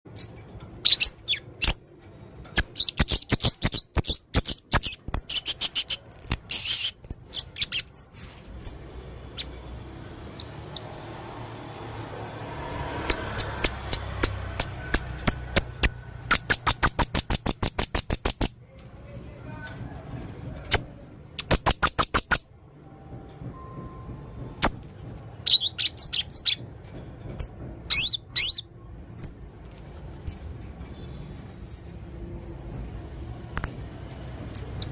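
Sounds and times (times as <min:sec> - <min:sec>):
parrot chirping: 0:00.1 - 0:01.9, 0:02.5 - 0:12.1, 0:13.0 - 0:18.6, 0:20.7 - 0:22.5, 0:25.4 - 0:26.6, 0:27.4 - 0:29.4, 0:31.3 - 0:31.9.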